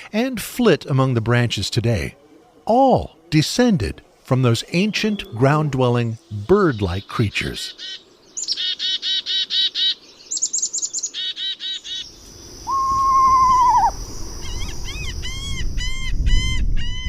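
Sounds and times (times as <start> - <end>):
arched bird calls: 4.5 - 17.0
high bird chirps: 7.7 - 16.1
long whistled bird note: 12.6 - 15.4.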